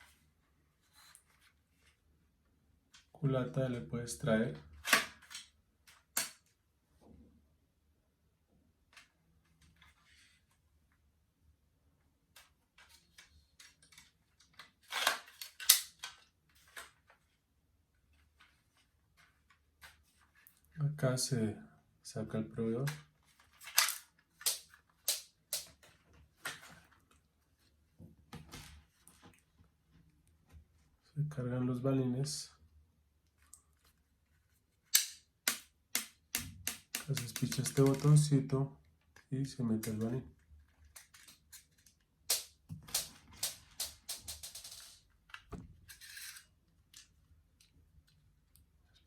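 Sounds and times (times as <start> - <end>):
toy rifle magazine plastic clicks: 14.9 - 16.2, 34.9 - 38.0.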